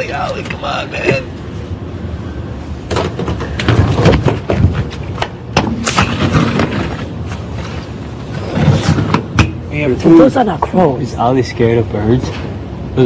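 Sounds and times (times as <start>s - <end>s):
sharp knocks and thuds: 2.9s - 7.0s.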